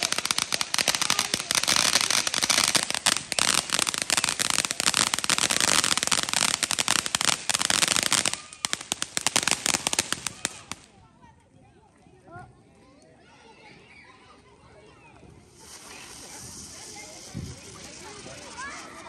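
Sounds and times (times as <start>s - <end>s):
firecrackers crackling: 0.0s - 11.0s, 15.3s - 19.0s.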